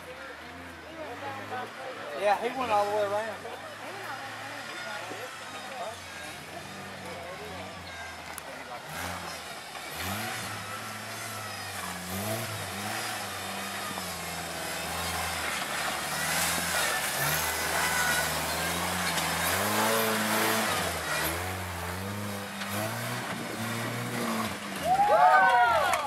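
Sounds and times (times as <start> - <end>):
engine revving under load: 0.0 - 26.0.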